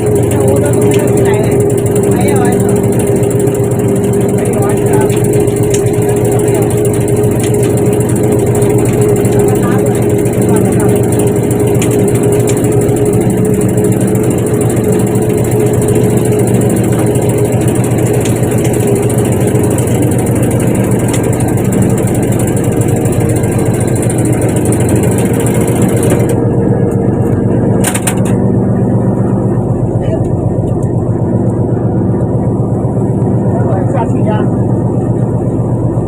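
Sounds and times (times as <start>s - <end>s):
boat engine running: 0.0s - 36.0s.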